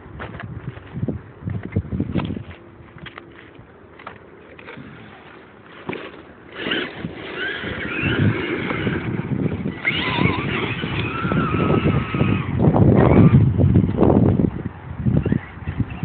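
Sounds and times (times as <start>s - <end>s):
tyres crackling over gravel: 0.1s - 12.6s
electric motors whining: 3.9s - 16.0s.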